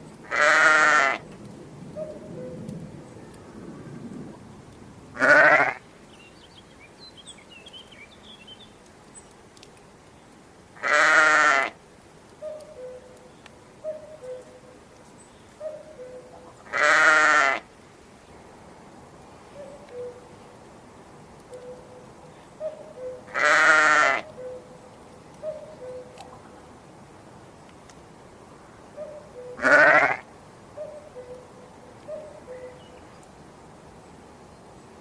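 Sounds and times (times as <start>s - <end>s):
quavering bleating calls: 0.3s - 1.2s, 5.2s - 5.8s, 10.8s - 11.8s, 16.6s - 17.7s, 23.3s - 24.3s, 29.6s - 30.3s.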